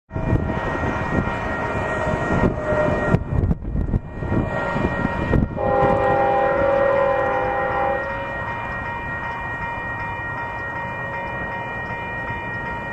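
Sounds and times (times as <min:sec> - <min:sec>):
freight train rumbling: 0:00.1 - 0:12.9
locomotive air horn chord: 0:00.2 - 0:03.3, 0:04.3 - 0:08.4.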